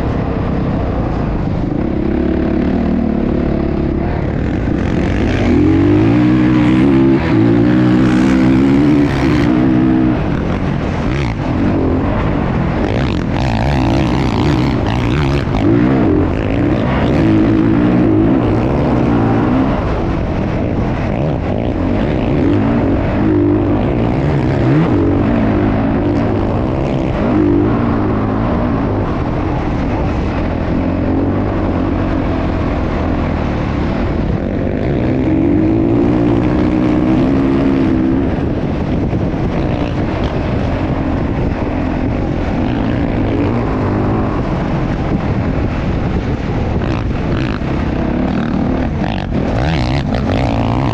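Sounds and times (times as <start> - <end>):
motocross bike engines revving: 0.0 - 50.9.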